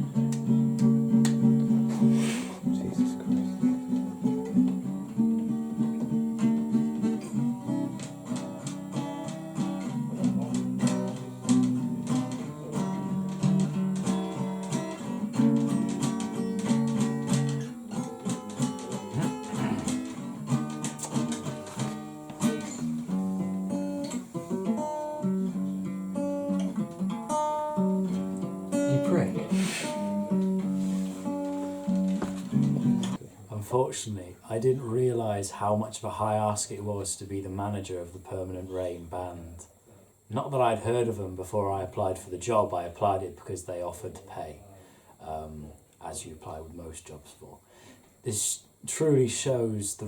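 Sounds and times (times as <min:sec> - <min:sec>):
acoustic guitar chords: 0:00.0 - 0:39.6.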